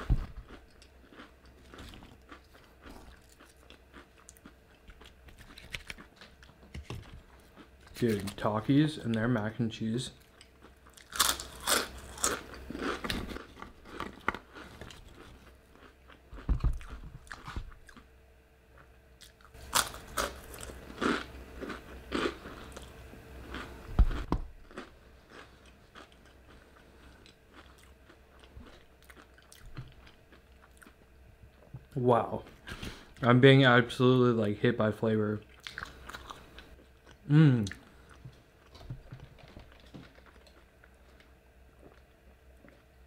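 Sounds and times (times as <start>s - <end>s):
crunching fried food: 0.0s - 18.1s, 18.7s - 31.0s.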